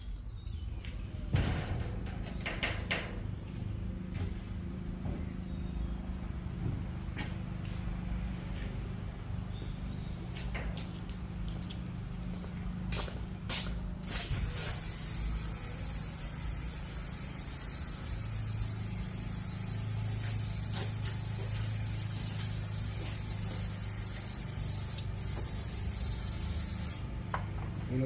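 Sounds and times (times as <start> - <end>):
steady low hum: 11.3 - 28.0.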